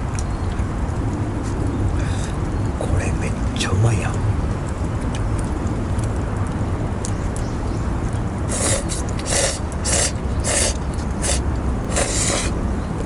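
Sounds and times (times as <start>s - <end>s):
person slurping noodles: 8.5s - 12.6s.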